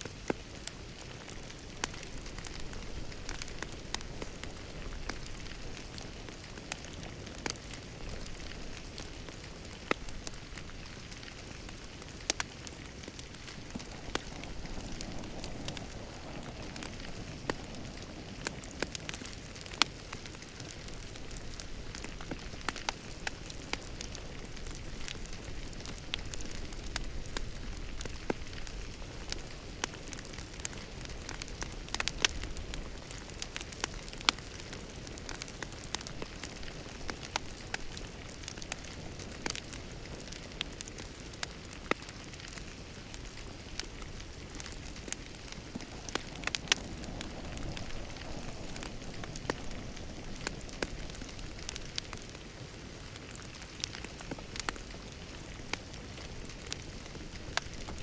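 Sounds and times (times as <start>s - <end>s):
fire popping and snapping: 0.0s - 58.0s
hiss of flames: 0.0s - 58.0s.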